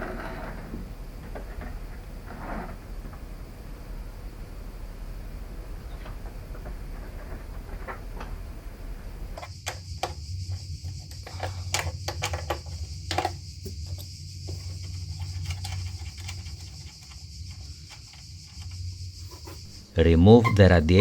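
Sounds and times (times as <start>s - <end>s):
steady low hum: 0.0s - 21.0s
clicks and knocks on car parts: 9.4s - 18.8s.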